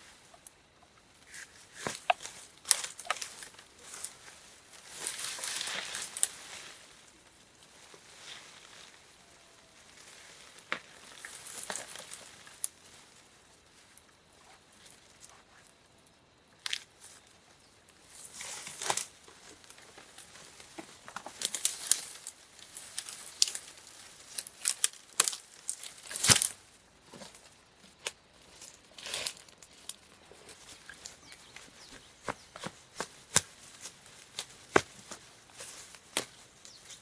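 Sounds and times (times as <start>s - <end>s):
sharp snaps and cracks: 0.3s - 6.6s, 10.0s - 13.2s, 16.5s - 17.3s, 17.9s - 37.0s
rustling and tearing: 1.3s - 7.0s, 18.1s - 37.0s.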